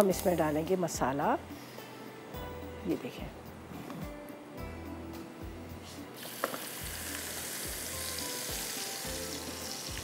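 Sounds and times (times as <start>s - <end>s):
food sizzling in hot oil: 6.1s - 10.0s.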